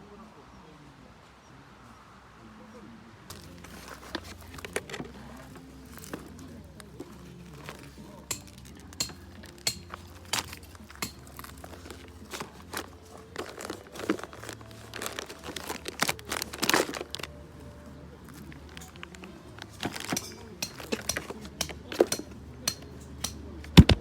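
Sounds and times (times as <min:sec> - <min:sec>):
crinkling and rustling: 0:03.3 - 0:24.0.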